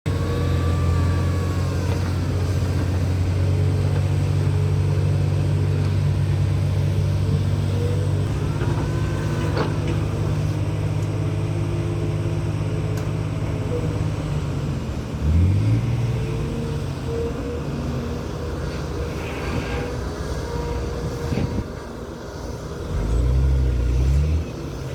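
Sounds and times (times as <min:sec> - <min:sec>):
diesel truck engine droning: 0:00.0 - 0:24.9
faint squeals: 0:17.1 - 0:23.3.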